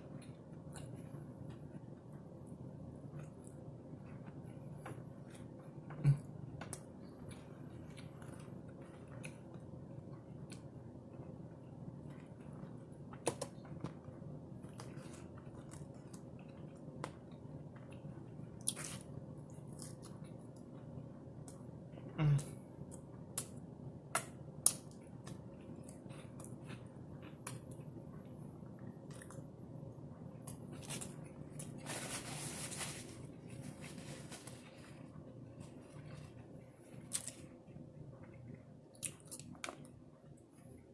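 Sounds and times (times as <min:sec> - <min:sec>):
person chewing food: 0:00.0 - 0:31.8, 0:33.4 - 0:40.9
rustling: 0:31.7 - 0:36.4.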